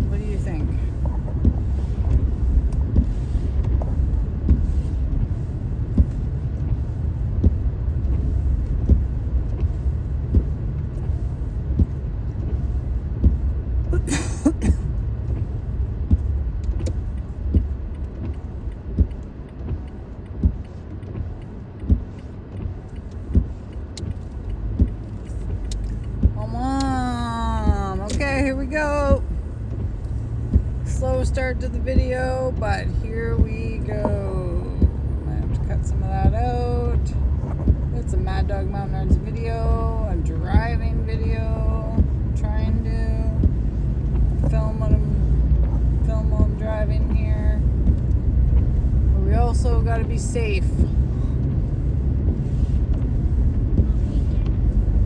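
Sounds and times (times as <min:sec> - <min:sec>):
road and engine rumble: 0:00.0 - 0:55.0
soft repeating knock: 0:15.3 - 0:26.4.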